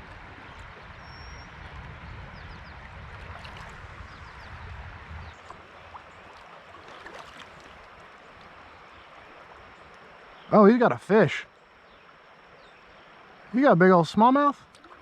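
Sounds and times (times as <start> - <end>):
river water rushing: 5.4 - 15.0.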